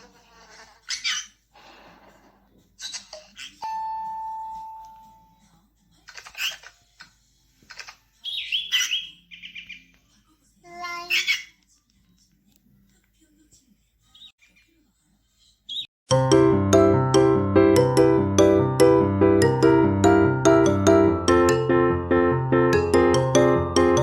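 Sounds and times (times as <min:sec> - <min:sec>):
bird chirps and calls: 0:08.2 - 0:09.9.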